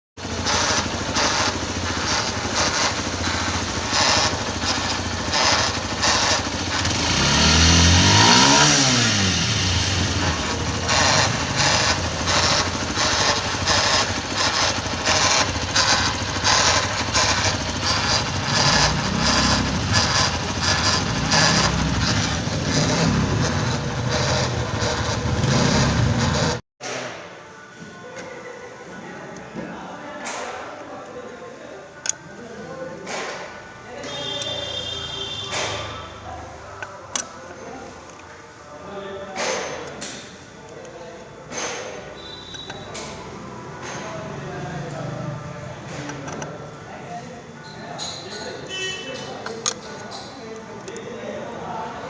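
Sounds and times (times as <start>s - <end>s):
motorcycle engine running and revving: 0.2s - 26.6s, 34.0s - 37.5s, 41.6s - 46.5s.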